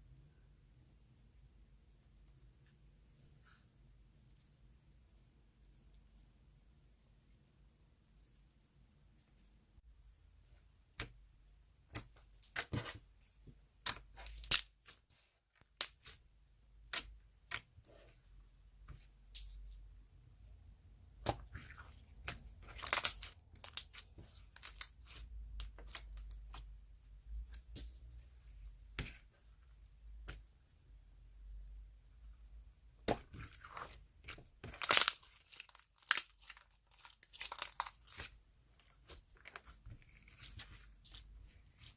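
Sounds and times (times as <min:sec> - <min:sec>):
slime popping and crackling: 0:13.8 - 0:15.0, 0:21.2 - 0:26.6, 0:33.0 - 0:41.9.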